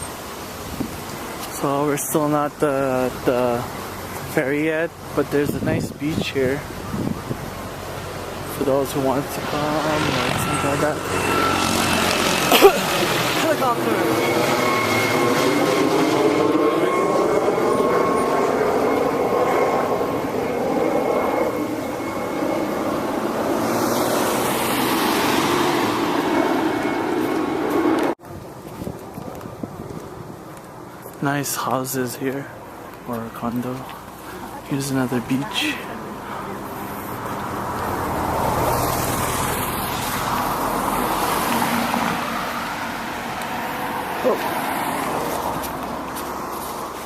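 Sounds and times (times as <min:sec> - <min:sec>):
hissing rush: 0:00.0 - 0:28.2
helicopter engine and rotor drone: 0:02.5 - 0:28.2, 0:32.6 - 0:47.0
road vehicle passing: 0:03.0 - 0:28.2, 0:32.8 - 0:47.0.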